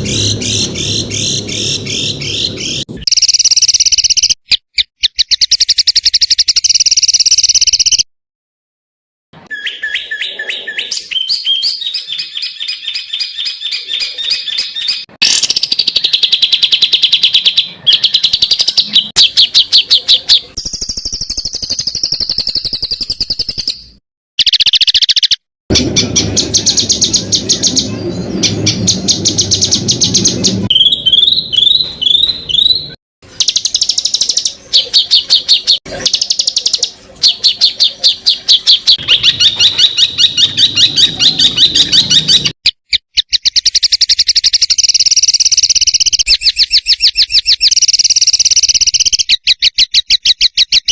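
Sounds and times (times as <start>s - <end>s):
songbirds trilling and chattering: 0.0s - 4.3s, 24.4s - 42.6s.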